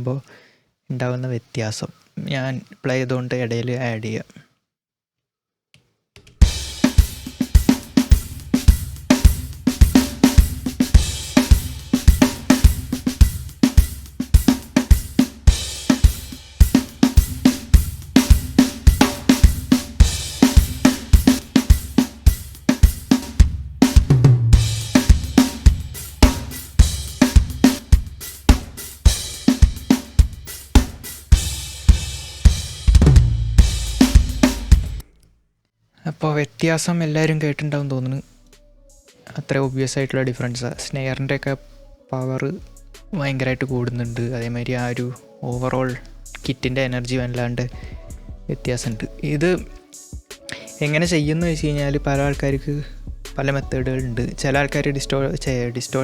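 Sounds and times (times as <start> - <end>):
rock drum kit beat: 6.4 - 35.0, 47.3 - 49.0, 49.6 - 56.0.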